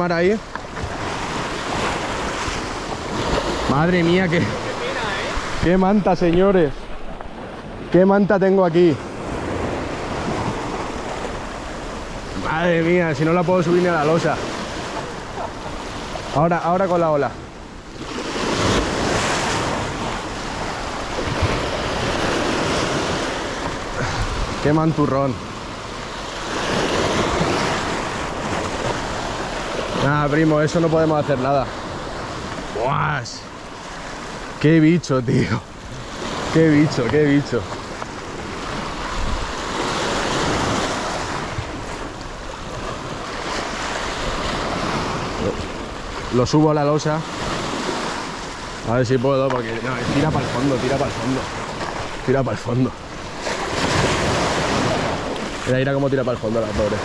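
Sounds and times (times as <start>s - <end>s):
surf rushing over rocks: 0.0s - 57.0s
wind buffeting microphone: 37.8s - 46.7s.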